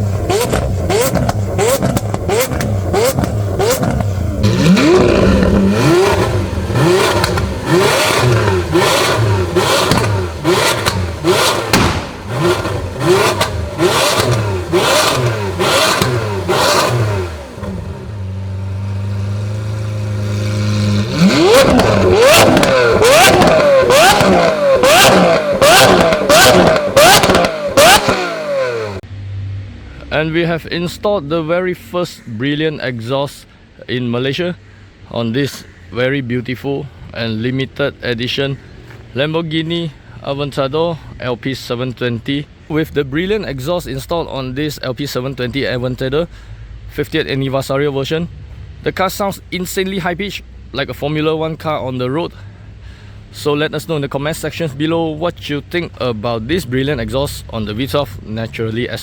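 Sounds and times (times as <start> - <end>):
exhaust pops: 0.0 - 29.0
car engine revving: 0.0 - 30.6.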